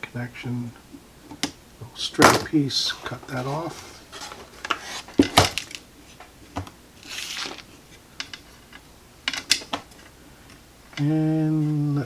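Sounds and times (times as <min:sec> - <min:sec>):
short rustle: 0:02.1 - 0:12.0
clicks and taps of hand tools: 0:08.2 - 0:11.1.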